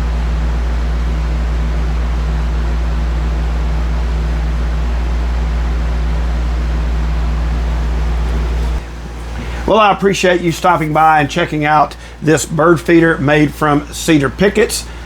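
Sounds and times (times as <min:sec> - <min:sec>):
machine humming and rushing: 0:00.0 - 0:09.7.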